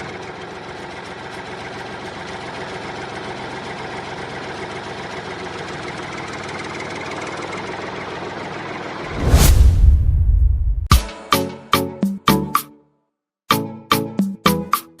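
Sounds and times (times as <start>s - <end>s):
small motor running steadily: 0.0s - 9.0s.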